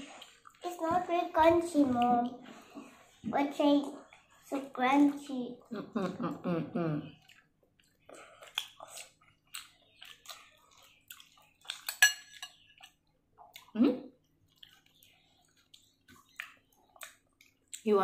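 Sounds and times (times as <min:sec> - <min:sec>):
chewing and wet mouth smacks: 0:00.1 - 0:00.6, 0:07.1 - 0:17.9.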